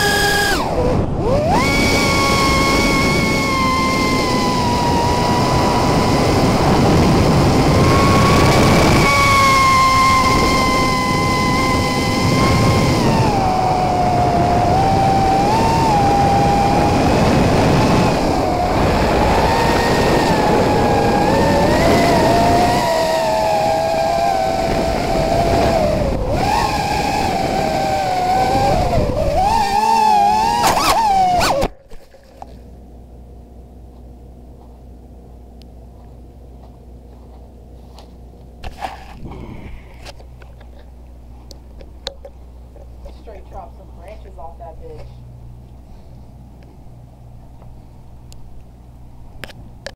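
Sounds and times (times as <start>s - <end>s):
drone motors whining: 0.0s - 33.0s, 38.6s - 46.8s
faint low hum: 0.0s - 49.9s
rush of air: 39.0s - 40.2s.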